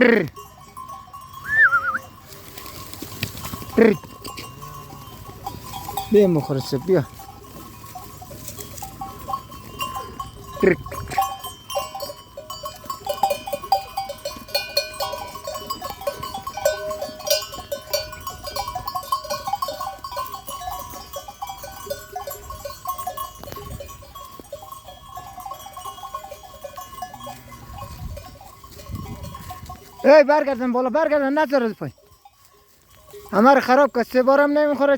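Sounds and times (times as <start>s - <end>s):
sheep bells clinking: 0.0s - 34.9s
sheep crunching apples: 2.0s - 22.2s.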